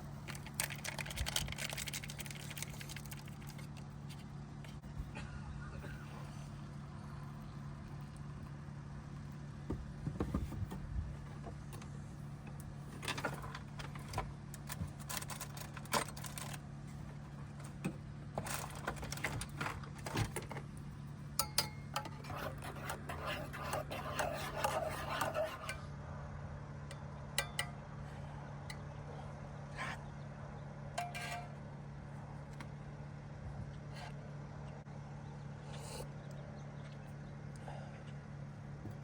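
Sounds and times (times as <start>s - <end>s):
low hum: 0.0s - 18.8s
gritty stirring: 0.2s - 4.9s, 21.4s - 25.8s.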